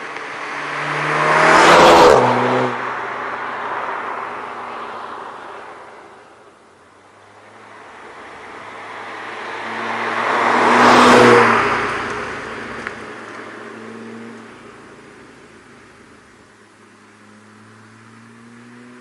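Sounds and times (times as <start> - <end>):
car driving past: 0.0 - 6.4, 7.2 - 15.1.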